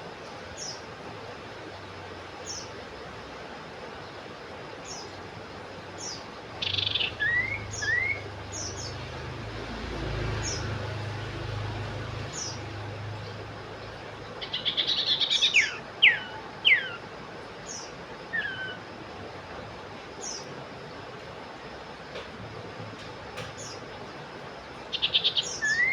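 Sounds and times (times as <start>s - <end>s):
bird chattering and whistling: 6.6s - 9.0s, 14.4s - 17.0s, 17.7s - 18.8s, 24.9s - 25.9s
low hum: 7.1s - 21.3s.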